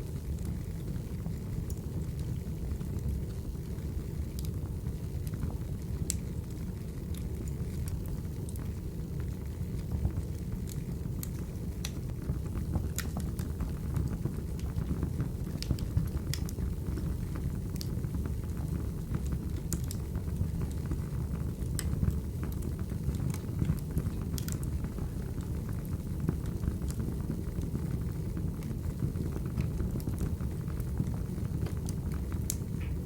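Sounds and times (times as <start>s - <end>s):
firewood burning and crackling: 0.0s - 33.0s.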